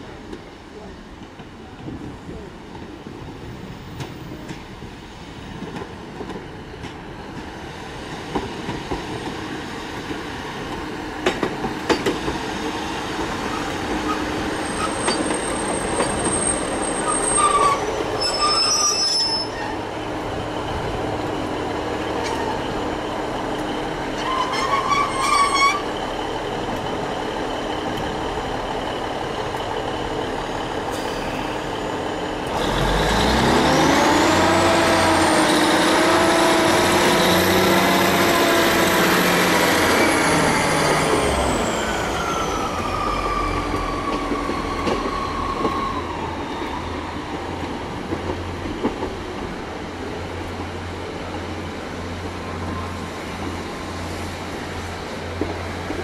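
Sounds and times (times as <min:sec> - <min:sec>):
train rumble: 0:00.0 - 0:56.0
high metallic squeals: 0:14.1 - 0:19.8, 0:24.2 - 0:25.9.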